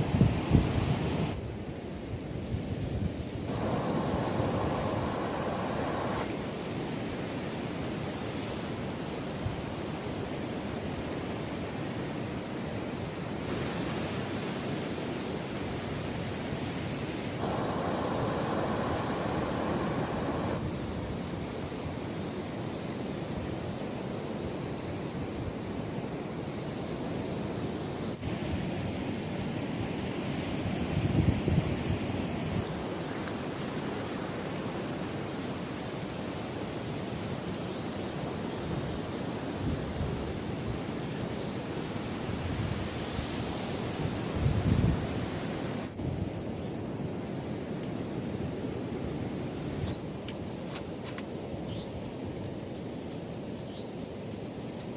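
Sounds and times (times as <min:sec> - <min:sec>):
surf washing on beach: 0:00.0 - 0:54.9
wind: 0:00.0 - 0:54.9
wind buffeting microphone: 0:02.5 - 0:06.4, 0:17.3 - 0:21.6.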